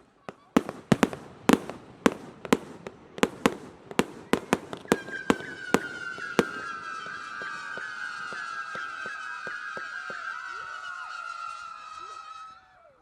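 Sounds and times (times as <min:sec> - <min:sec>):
fireworks bangs: 0:00.0 - 0:11.8
high whistling tone: 0:03.2 - 0:13.0.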